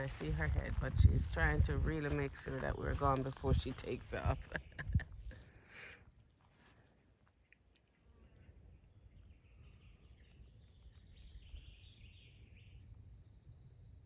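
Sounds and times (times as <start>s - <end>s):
steady low rumble: 0.0s - 5.4s
distant bird chirps: 3.5s - 14.0s.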